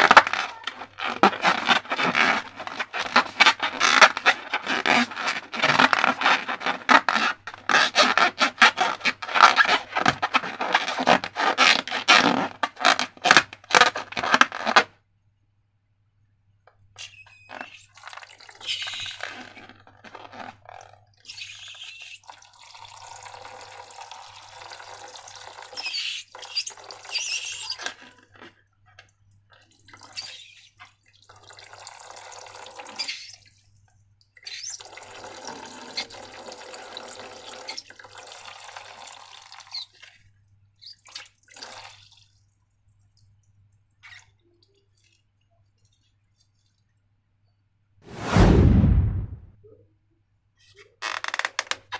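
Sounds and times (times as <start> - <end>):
slime pouring and dripping: 17.4 - 28.6, 34.2 - 46.9.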